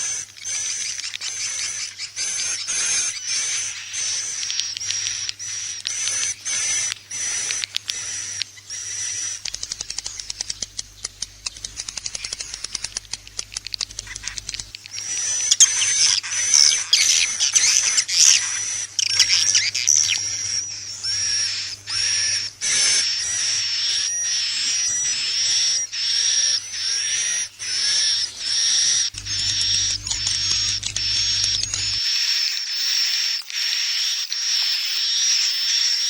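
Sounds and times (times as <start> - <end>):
dense twittering: 0.0 - 36.0
rapid clicking: 9.2 - 15.1.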